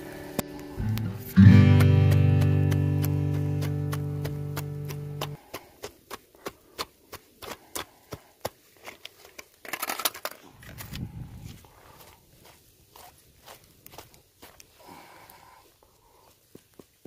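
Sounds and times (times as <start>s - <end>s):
acoustic guitar music: 0.0s - 5.4s
footsteps on crusted snow: 0.0s - 9.6s, 10.4s - 17.0s.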